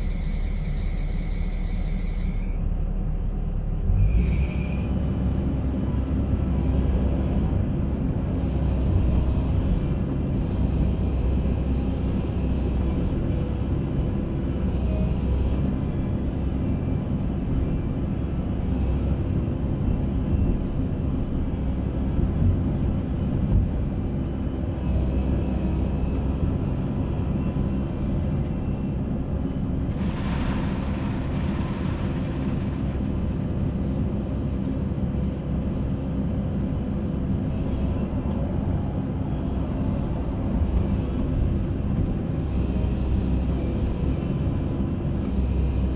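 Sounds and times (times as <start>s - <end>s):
concrete mixer rumbling: 29.8s - 34.6s.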